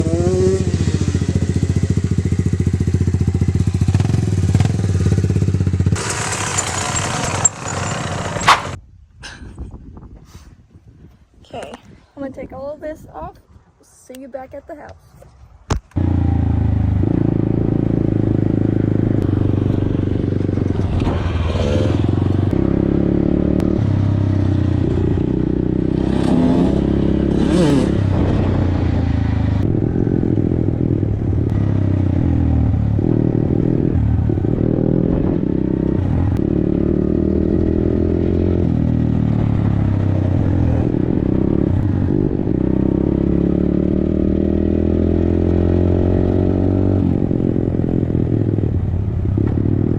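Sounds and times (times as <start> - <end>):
dirt bike engine revving: 0.0 - 8.8, 16.0 - 48.6.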